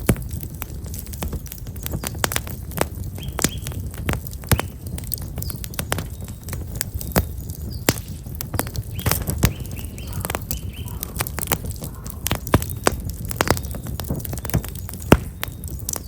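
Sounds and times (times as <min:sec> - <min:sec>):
campfire crackling and popping: 0:00.0 - 0:16.0
small bird chirping: 0:03.1 - 0:03.8, 0:04.5 - 0:16.0.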